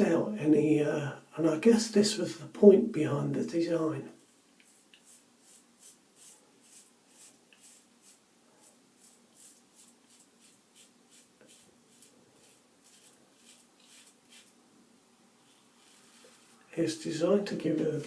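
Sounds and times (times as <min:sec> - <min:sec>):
razor scraping stubble: 0:04.6 - 0:14.6.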